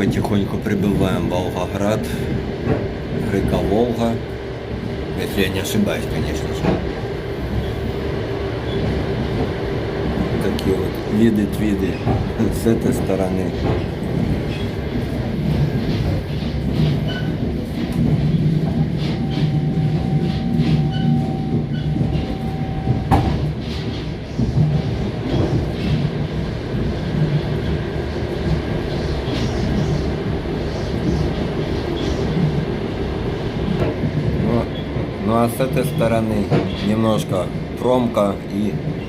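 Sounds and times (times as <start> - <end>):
train rumbling on rails: 0.0 - 39.0.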